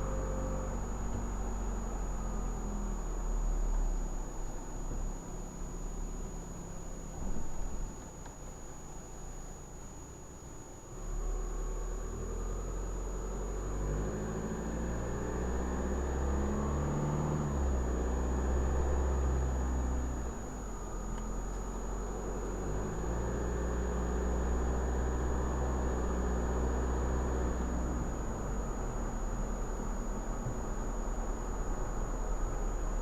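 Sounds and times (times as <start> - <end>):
road rumble: 0.0 - 33.0
car engine running: 12.4 - 33.0.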